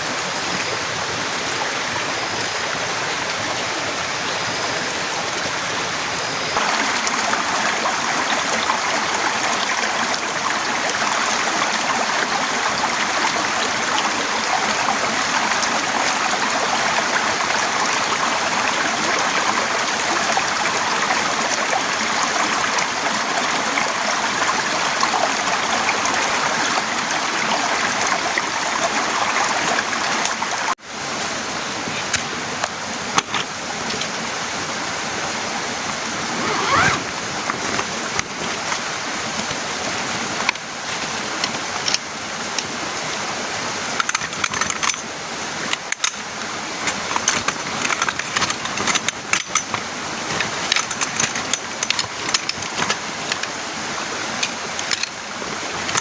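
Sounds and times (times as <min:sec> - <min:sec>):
torrential rain: 0:06.3 - 0:30.8.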